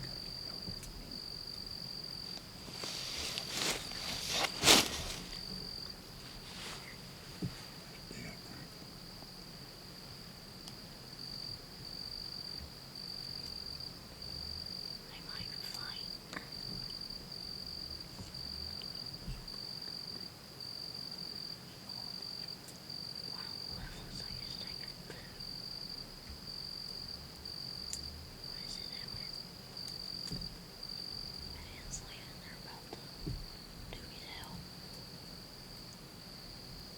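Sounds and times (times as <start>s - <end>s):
insect chirping trill: 0.0s - 7.1s, 8.0s - 36.9s
faint rustles and clicks: 2.2s - 8.6s.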